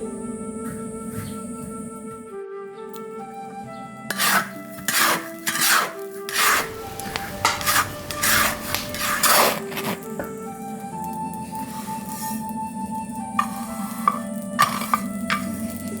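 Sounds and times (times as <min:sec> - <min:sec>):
background music: 0:00.0 - 0:16.0
slow rasping scraping strokes: 0:04.1 - 0:16.0.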